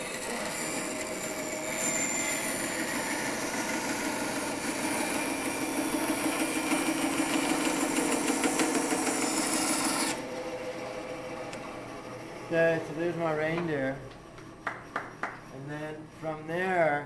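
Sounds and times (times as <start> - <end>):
band saw cutting wood: 0.0 - 10.4.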